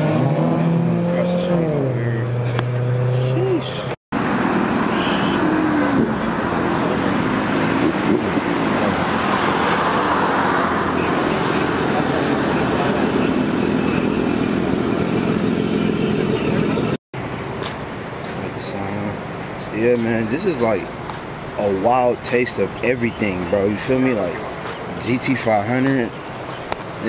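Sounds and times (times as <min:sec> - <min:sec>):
car engines running: 0:00.0 - 0:27.0
people talking: 0:01.0 - 0:02.4, 0:03.1 - 0:04.0, 0:04.9 - 0:07.5, 0:10.9 - 0:15.1, 0:18.3 - 0:20.9, 0:21.6 - 0:26.2.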